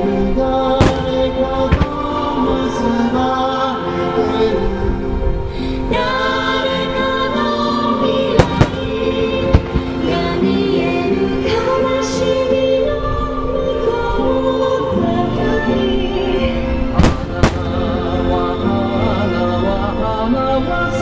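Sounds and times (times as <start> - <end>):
song with singing over chords: 0.0 - 21.0
firework bangs: 0.8 - 2.8, 8.3 - 11.0, 17.0 - 18.4.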